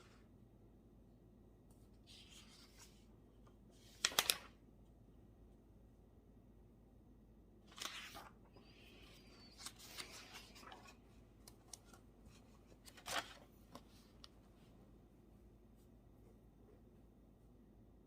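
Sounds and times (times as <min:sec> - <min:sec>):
paper rustling: 0:02.0 - 0:03.1, 0:03.8 - 0:04.6, 0:07.7 - 0:14.3.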